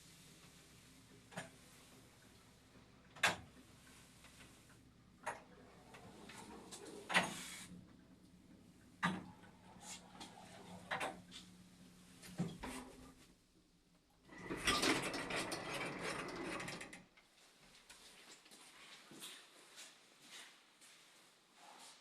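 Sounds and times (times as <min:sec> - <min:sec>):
elevator mechanism clicking: 0:14.3 - 0:17.0.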